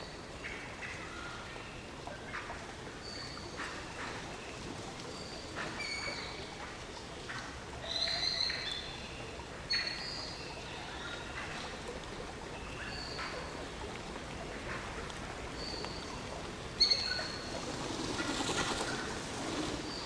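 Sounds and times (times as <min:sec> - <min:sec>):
steady rain falling: 0:00.0 - 0:20.0
birds chirping: 0:09.7 - 0:20.0.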